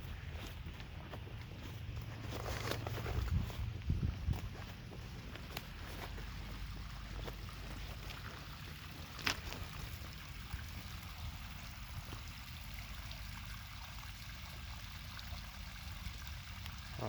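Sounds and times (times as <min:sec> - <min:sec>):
water hissing in rain: 0:06.6 - 0:17.0.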